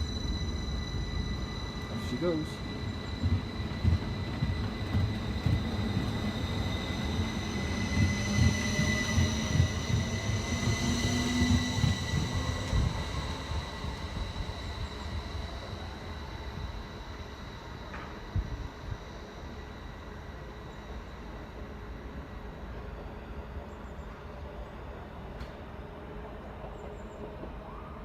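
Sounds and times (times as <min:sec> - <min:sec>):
train low rumble: 0:00.0 - 0:28.0
train thumps: 0:03.0 - 0:07.3.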